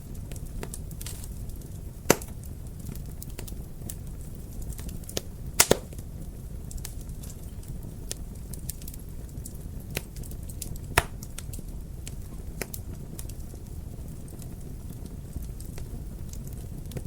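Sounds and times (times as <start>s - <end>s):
low rumble of flame: 0.0s - 17.0s
wood fire crackling: 0.0s - 17.0s
sharp pops and snaps: 2.1s - 2.5s, 4.7s - 6.0s, 9.4s - 11.7s.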